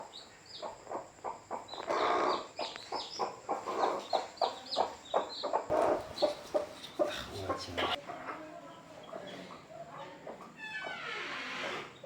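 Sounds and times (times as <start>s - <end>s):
hen clucking: 0.0s - 8.3s
chicks peeping: 0.0s - 9.7s.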